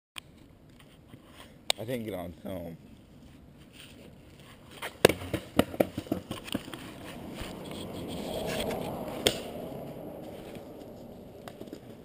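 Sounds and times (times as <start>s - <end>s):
skateboard wheels rolling: 3.2s - 12.0s
skateboard clacking: 4.8s - 6.8s.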